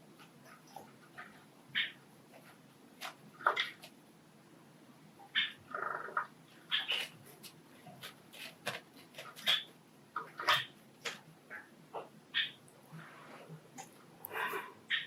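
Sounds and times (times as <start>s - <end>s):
sparrows chirping: 1.7s - 2.0s.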